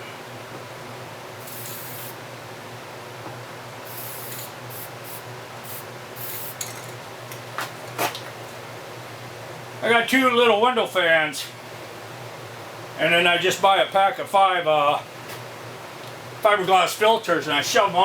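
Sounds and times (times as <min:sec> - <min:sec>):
ventilation fans humming: 0:00.0 - 0:18.0
aerosol spray can hissing: 0:01.4 - 0:02.2, 0:03.9 - 0:06.6.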